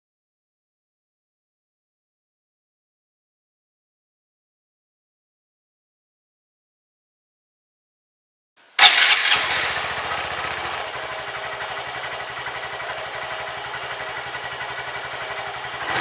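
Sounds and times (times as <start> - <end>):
motorcycle engine starting and idling: 8.8 - 16.0.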